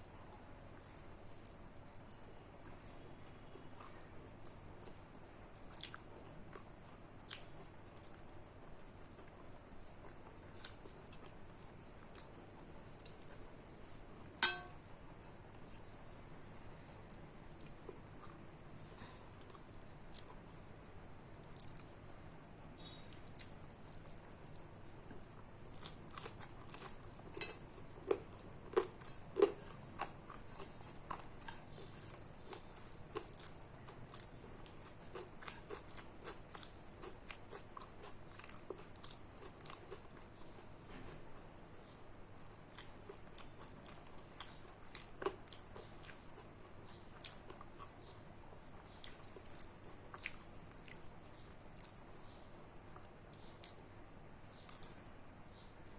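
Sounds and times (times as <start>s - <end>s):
person chewing food: 3.5s - 16.2s, 17.0s - 20.7s, 21.4s - 22.2s, 22.8s - 53.9s
food crunching: 22.8s - 52.4s.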